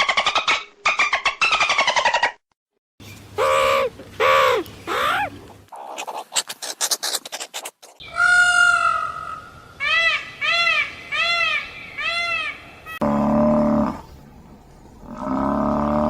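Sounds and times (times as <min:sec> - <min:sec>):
animal pitched calls: 0:03.4 - 0:13.0.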